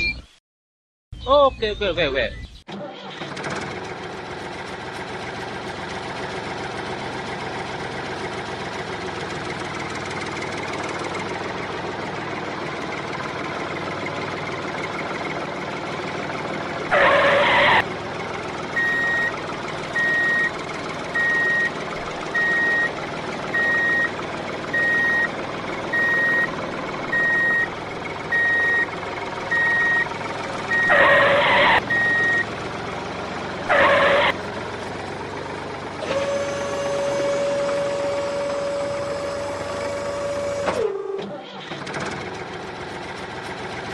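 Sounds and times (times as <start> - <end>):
vehicle engine running: 2.3 - 43.9
horn honks: 16.9 - 17.8, 30.7 - 32.4, 33.6 - 34.4
reversing alarm beeping: 18.8 - 32.5.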